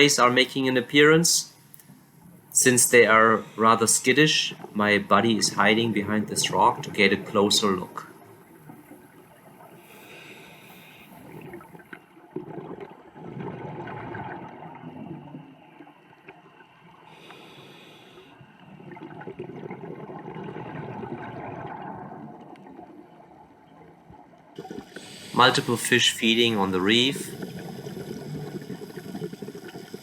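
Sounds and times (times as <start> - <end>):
underwater regulator bubbling: 24.6 - 30.0.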